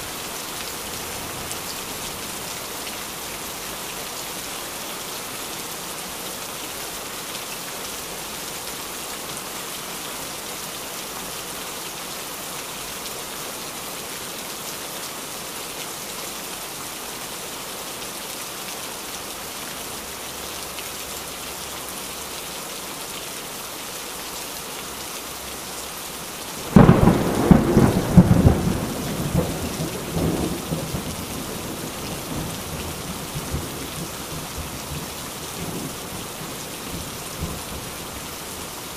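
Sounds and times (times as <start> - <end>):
heavy rain falling: 0.0 - 38.9
thunderclap rumbling: 26.6 - 32.5.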